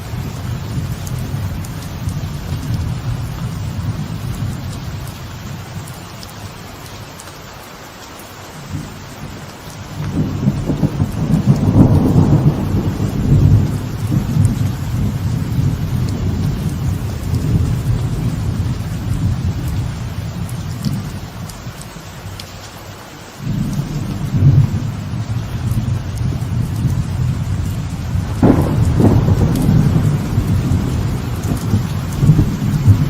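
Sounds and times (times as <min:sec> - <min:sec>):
light rain on a veranda: 0:00.0 - 0:33.0
thunder rumbling: 0:08.7 - 0:21.8, 0:23.4 - 0:33.0.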